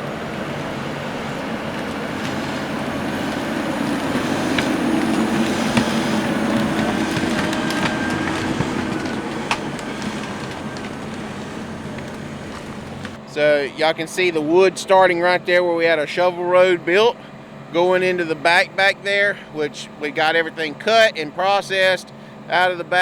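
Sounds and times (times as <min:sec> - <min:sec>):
diesel engine of passing skidder: 0:00.0 - 0:13.3.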